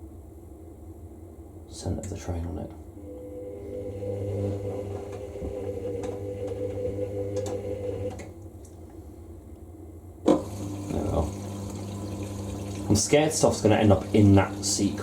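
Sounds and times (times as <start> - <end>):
washing machine motor whine: 2.9 - 8.6, 10.2 - 15.0.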